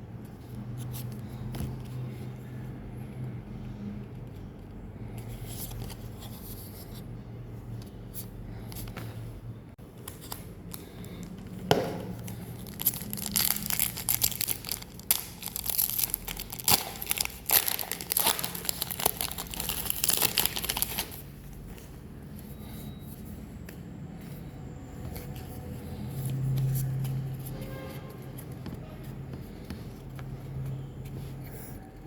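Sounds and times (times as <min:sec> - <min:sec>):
wrapper crinkling: 0:12.2 - 0:21.2
wrapper tearing: 0:12.6 - 0:21.2.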